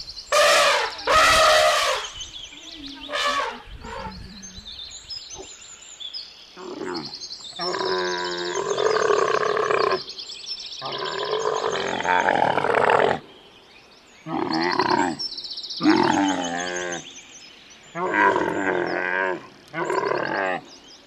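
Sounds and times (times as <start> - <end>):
farm animal calling loudly: 0.3 - 2.2, 3.1 - 4.2.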